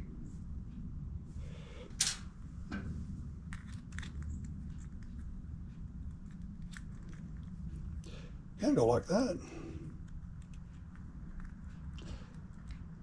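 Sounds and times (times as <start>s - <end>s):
low steady hum: 0.0s - 13.0s
small metal parts clicking: 2.0s - 2.3s.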